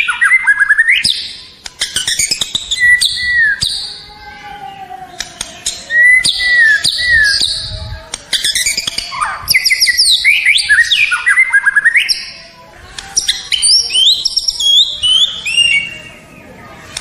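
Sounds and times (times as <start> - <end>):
bird singing whistles and trills: 0.0 - 4.1, 5.4 - 12.4, 13.2 - 16.4.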